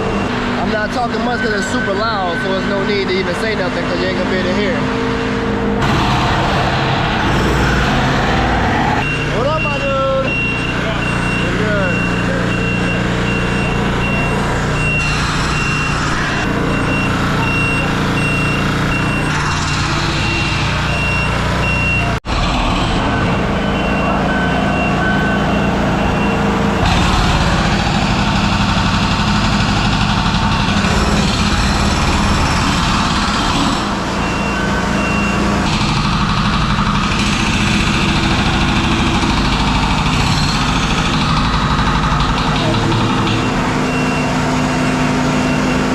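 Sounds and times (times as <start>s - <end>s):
backup alarm beeping: 0.0s - 3.4s, 9.0s - 22.2s, 23.0s - 27.1s, 34.0s - 35.7s, 42.1s - 45.9s
heavy diesel machinery running: 0.0s - 45.9s.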